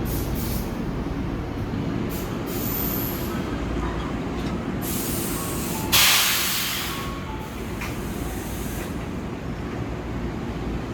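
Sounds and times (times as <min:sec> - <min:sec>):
train hiss and rumble: 0:00.0 - 0:10.9
compressed air hiss burst: 0:04.8 - 0:07.0.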